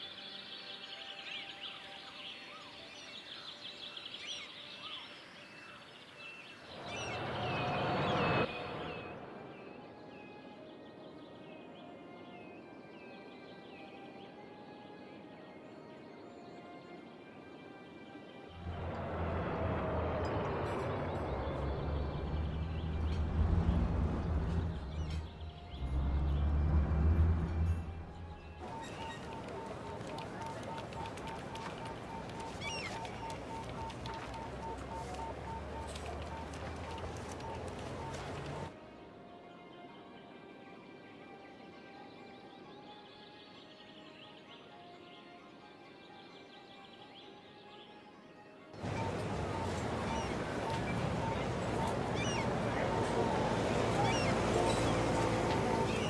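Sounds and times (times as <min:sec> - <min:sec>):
small birds chirping: 0:20.2 - 0:26.6, 0:27.4 - 0:38.8, 0:48.8 - 0:56.0
broad rush of noise: 0:28.6 - 0:38.7, 0:48.8 - 0:56.0.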